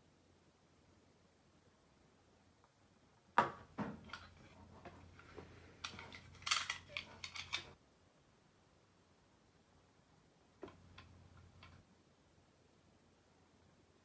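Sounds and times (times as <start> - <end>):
small hard parts clicking and rattling: 4.0 - 7.8, 10.6 - 11.8.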